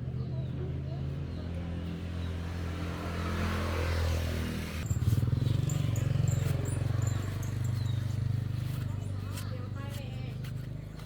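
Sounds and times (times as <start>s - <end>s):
small engine running: 4.8s - 8.9s.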